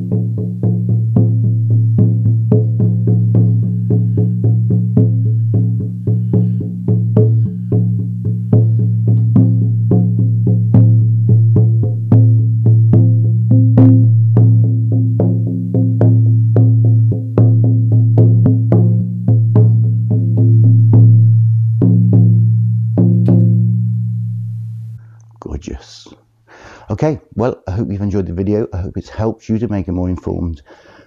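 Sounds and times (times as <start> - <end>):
frame drum beats: 0.0 - 24.2.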